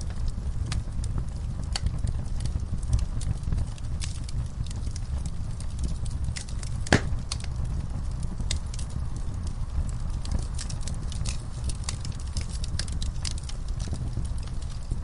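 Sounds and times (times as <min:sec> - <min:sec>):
low steady rumble: 0:00.0 - 0:15.0
wood fire crackling and popping: 0:00.0 - 0:15.0
loud sharp pop: 0:06.9 - 0:07.2.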